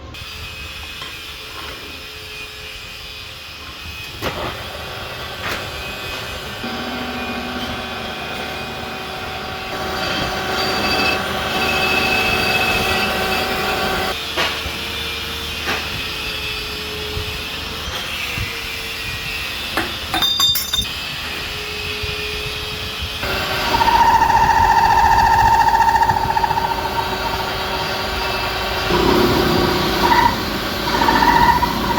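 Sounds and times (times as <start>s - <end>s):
high whine: 6.6s - 14.1s, 23.2s - 31.9s
metallic clinks: 20.1s - 20.9s.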